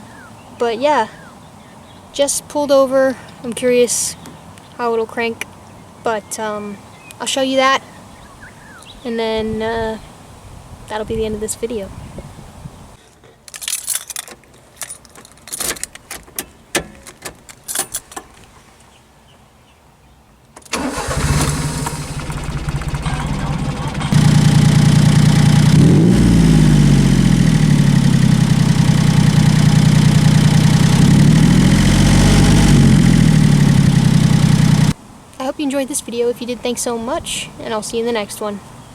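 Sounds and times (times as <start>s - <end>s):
engine cranking on starter: 20.7s - 35.0s
engine revving and idling: 20.8s - 35.0s.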